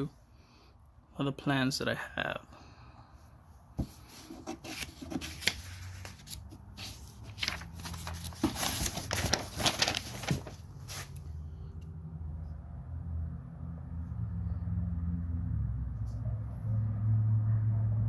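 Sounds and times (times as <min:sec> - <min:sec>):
rustling and handling noises: 0:03.6 - 0:11.4.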